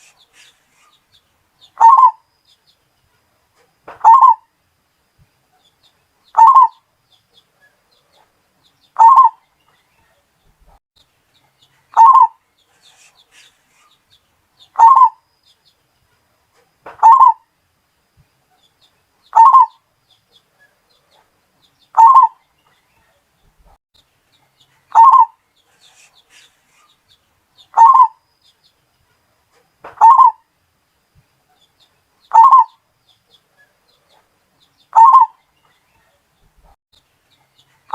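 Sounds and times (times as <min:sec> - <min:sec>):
dove cooing: 0:01.8 - 0:02.2, 0:04.0 - 0:04.4, 0:06.4 - 0:06.8, 0:09.0 - 0:09.4, 0:12.0 - 0:12.4, 0:14.8 - 0:15.2, 0:17.0 - 0:17.4, 0:19.3 - 0:19.8, 0:22.0 - 0:22.4, 0:24.9 - 0:25.4, 0:27.7 - 0:28.2, 0:30.0 - 0:30.4, 0:32.3 - 0:32.8, 0:34.9 - 0:35.4.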